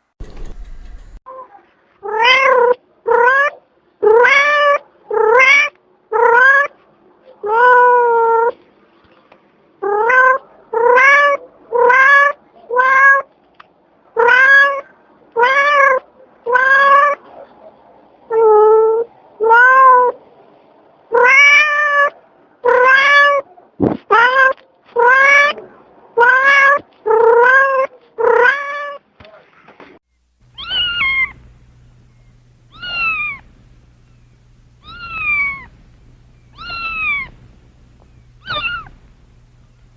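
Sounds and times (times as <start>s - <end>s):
cat meowing: 2.0s - 6.7s, 7.4s - 8.5s, 9.8s - 13.3s, 14.2s - 17.2s, 18.3s - 20.2s, 21.1s - 23.4s, 24.1s - 25.6s, 26.2s - 29.0s, 30.5s - 31.5s, 32.7s - 33.5s, 34.8s - 35.8s, 36.5s - 37.5s, 38.4s - 39.0s.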